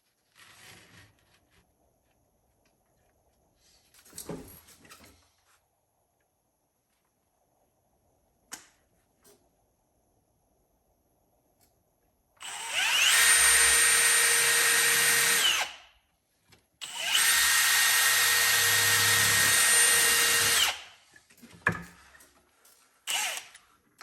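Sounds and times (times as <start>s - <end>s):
power drill boring into wood: 12.4s - 15.8s, 16.8s - 20.9s, 23.1s - 23.6s.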